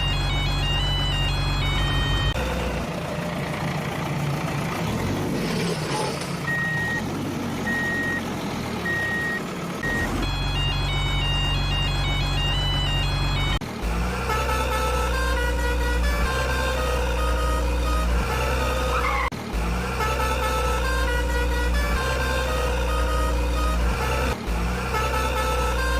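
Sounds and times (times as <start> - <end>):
truck reversing alarm beeping: 0.0 - 2.9, 6.4 - 13.6
vehicle rumble: 0.0 - 25.9.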